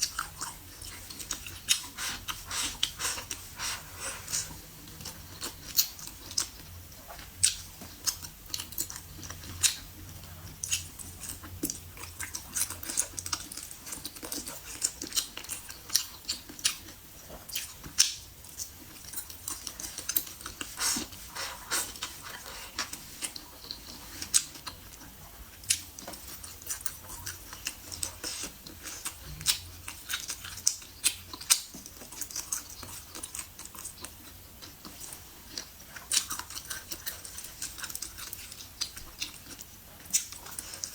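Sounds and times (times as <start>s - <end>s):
person chewing: 0.0s - 40.9s.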